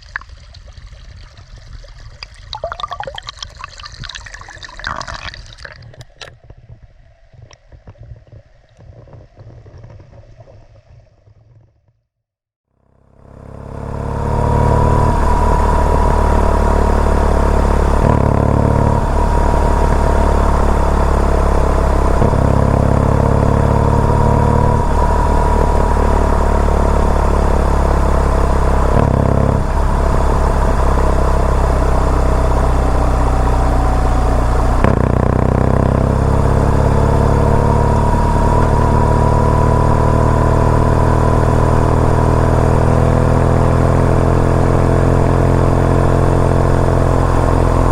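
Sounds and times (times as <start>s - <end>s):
motorcycle engine running: 12.8s - 47.9s.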